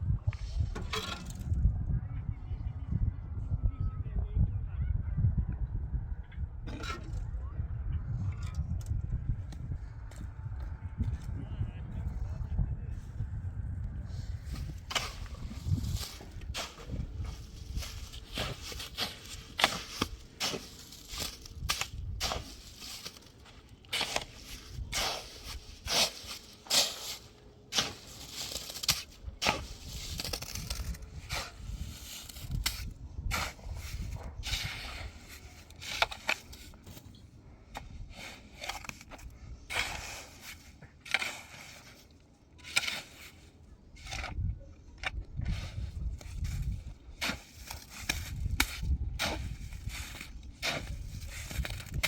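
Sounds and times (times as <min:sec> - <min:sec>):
knocks and scrapes of building work: 0:00.2 - 0:01.7, 0:06.6 - 0:07.3, 0:14.0 - 0:52.0.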